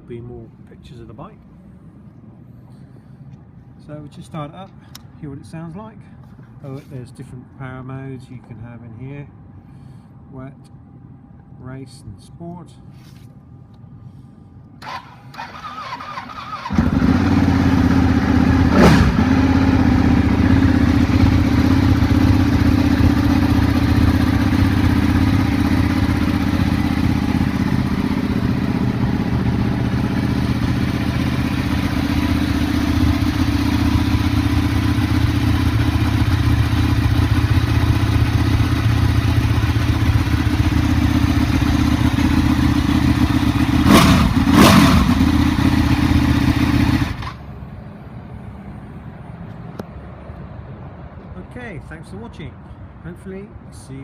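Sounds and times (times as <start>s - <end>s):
motorcycle engine idling: 14.8s - 47.6s.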